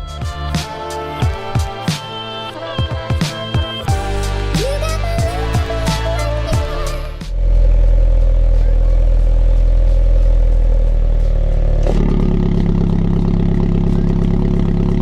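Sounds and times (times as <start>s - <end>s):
car engine through exhaust: 5.7s - 15.0s.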